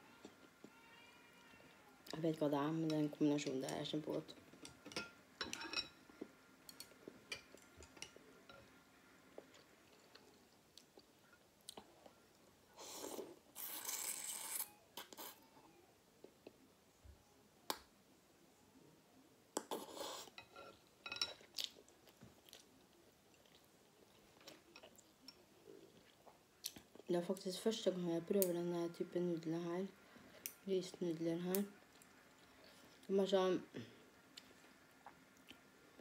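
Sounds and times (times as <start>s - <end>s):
person chewing food: 21.4s - 27.1s.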